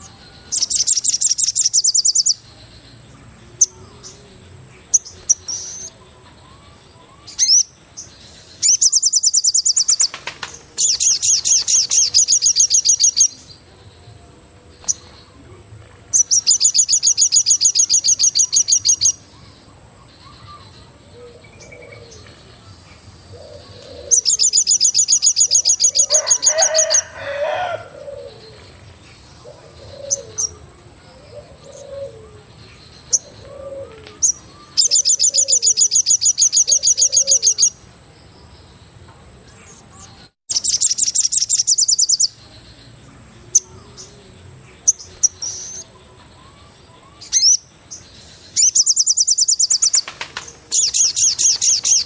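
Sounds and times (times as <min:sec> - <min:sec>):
loud high rapid bird trill: 0:00.0 - 0:02.5, 0:06.6 - 0:13.5, 0:16.1 - 0:20.8, 0:23.4 - 0:28.5, 0:46.5 - 0:52.0
low cooing bird calls: 0:20.2 - 0:22.5, 0:23.2 - 0:37.8.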